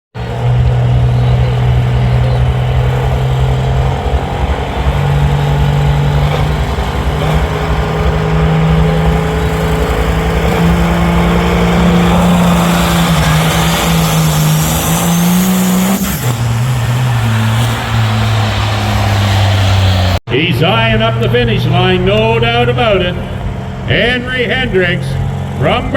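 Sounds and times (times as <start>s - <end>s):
tractor diesel engine under load: 0.1s - 25.9s.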